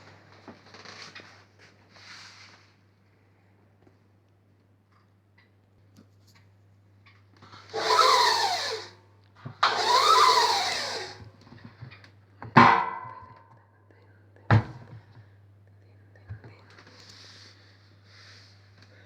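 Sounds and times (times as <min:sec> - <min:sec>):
sharp ringing knock: 0:12.6 - 0:13.3.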